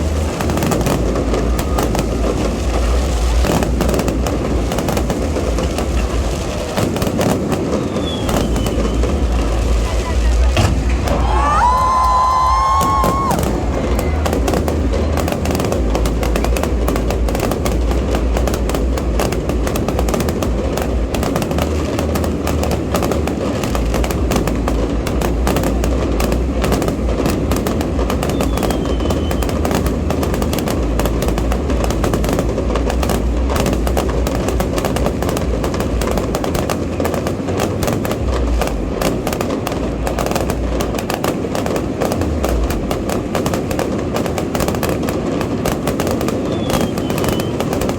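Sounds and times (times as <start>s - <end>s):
fireworks crackling and popping: 0.0s - 47.9s
low rumble of firework launches: 0.0s - 47.9s.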